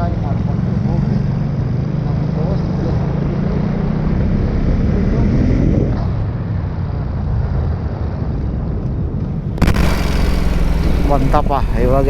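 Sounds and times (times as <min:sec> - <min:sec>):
road and wind noise: 0:00.0 - 0:12.0
motorcycle engine running: 0:09.5 - 0:12.0.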